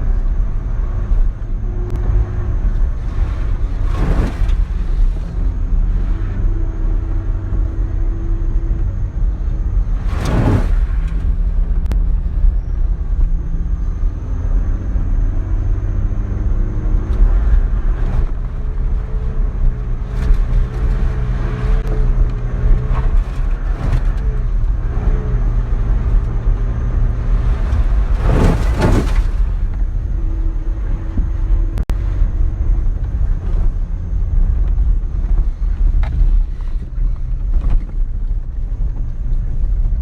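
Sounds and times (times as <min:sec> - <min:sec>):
vehicle engine running: 0:00.0 - 0:40.0
brief whoosh: 0:10.0 - 0:12.0, 0:27.1 - 0:31.6.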